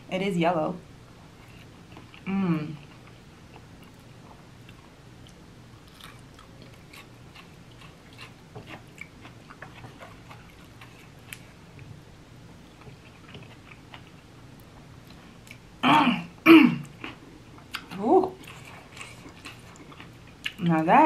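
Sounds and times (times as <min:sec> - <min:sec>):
person chewing: 0:01.4 - 0:11.8, 0:12.7 - 0:15.7, 0:16.8 - 0:20.7.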